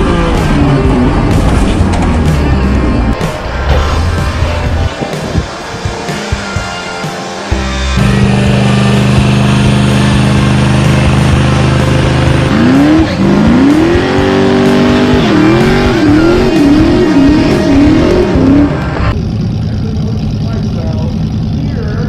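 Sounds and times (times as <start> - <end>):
car engine revving hard: 8.0 - 19.2.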